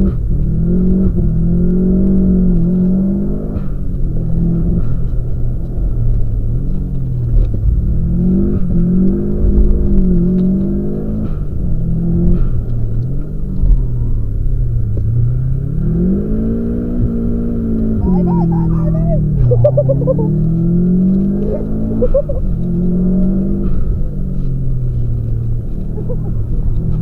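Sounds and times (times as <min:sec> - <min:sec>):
car engine revving: 0:00.0 - 0:27.0
heavy low rumble: 0:17.8 - 0:27.0.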